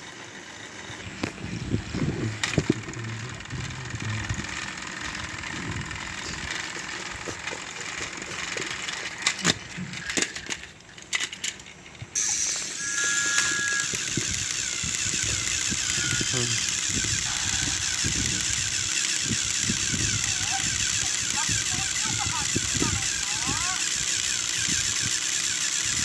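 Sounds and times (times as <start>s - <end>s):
toy train motor whirring: 0.0s - 26.0s
toy train wheels rattling on track: 0.0s - 26.0s
short steady tones: 12.2s - 26.0s.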